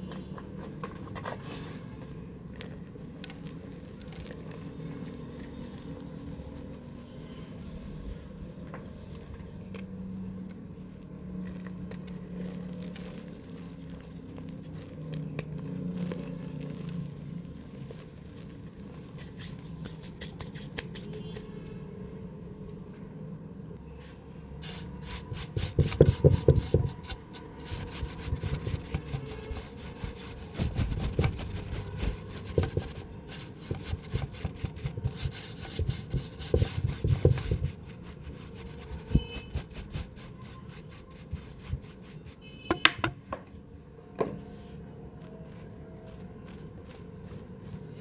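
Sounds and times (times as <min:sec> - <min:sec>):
dry mud crumbling in a pot: 0:00.1 - 0:07.0, 0:11.2 - 0:21.6, 0:24.6 - 0:43.0.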